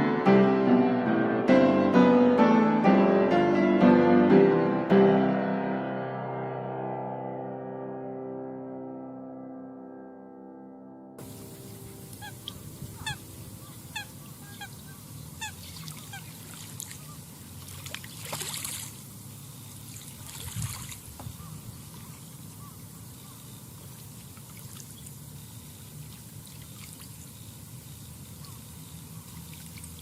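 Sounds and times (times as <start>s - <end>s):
water lapping at shore: 11.2s - 30.0s
waterbirds calling: 11.2s - 30.0s.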